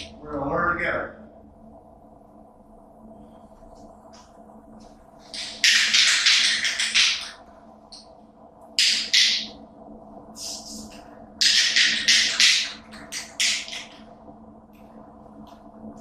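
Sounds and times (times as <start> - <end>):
faint steady hum: 0.0 - 16.0
spray paint can hissing: 10.4 - 13.9.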